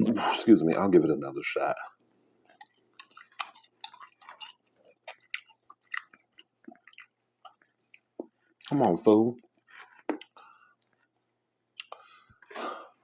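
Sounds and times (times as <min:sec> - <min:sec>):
person chewing: 0:02.4 - 0:08.7, 0:09.5 - 0:12.7.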